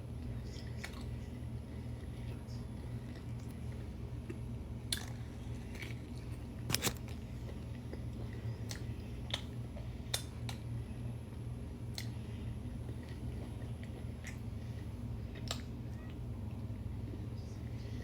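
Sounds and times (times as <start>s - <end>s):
chewing with mouth smacks: 0.5s - 1.3s, 2.8s - 10.6s, 12.8s - 16.2s.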